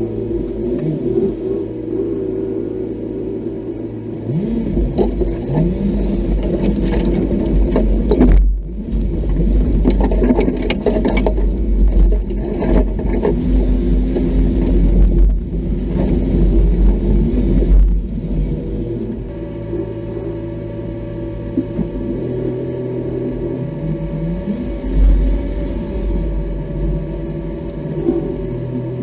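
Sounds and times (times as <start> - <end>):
heavy low rumble: 0.0 - 29.0
off-road vehicle engine revving: 0.0 - 29.0
knocks and scrapes: 4.7 - 18.0.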